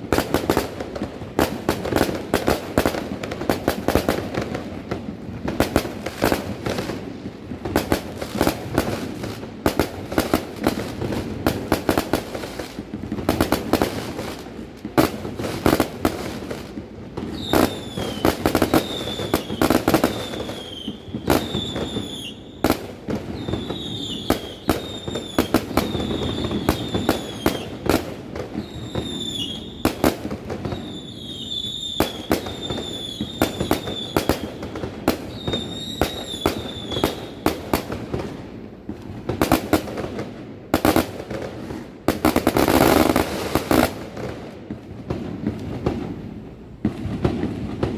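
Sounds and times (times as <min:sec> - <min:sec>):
fireworks bangs and crackling: 0:00.0 - 0:47.9
falling firework whistles: 0:15.7 - 0:38.3.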